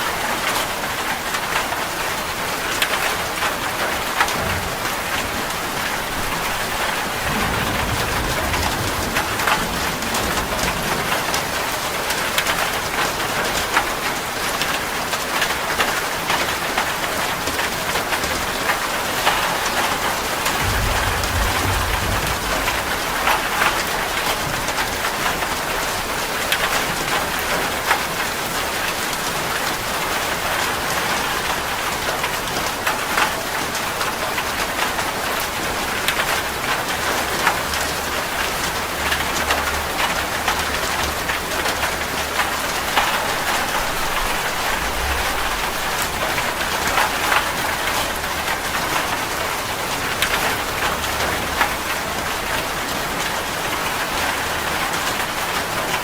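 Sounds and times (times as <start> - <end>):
heavy rain on a metal roof: 0.0 - 56.0
thunder rumbling: 3.3 - 14.1, 18.4 - 27.6, 38.7 - 51.9.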